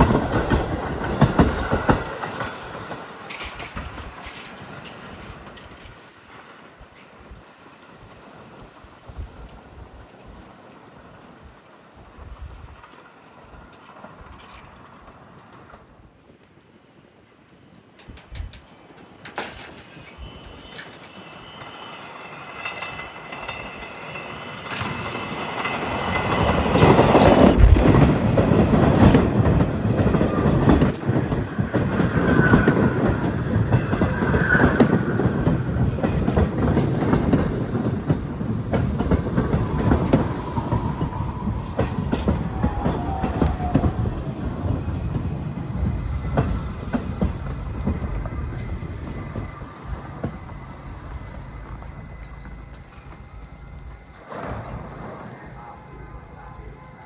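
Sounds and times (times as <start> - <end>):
wheels clicking over rail joints: 0.0 - 7.2, 17.7 - 57.0
subway train rumbling past: 0.0 - 16.2, 17.2 - 57.0
wheel squeals: 18.0 - 57.0.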